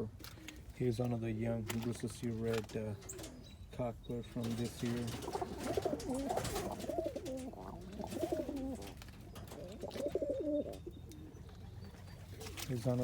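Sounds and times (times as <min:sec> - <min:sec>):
pigeons cooing: 0:02.7 - 0:13.0.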